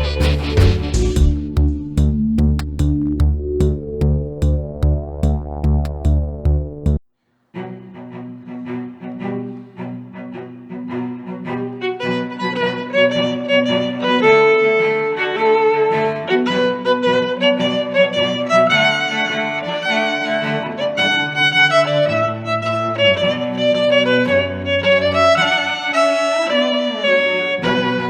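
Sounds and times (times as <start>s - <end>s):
moving bass line: 0.0s - 7.0s
violin and strings music: 7.6s - 28.0s.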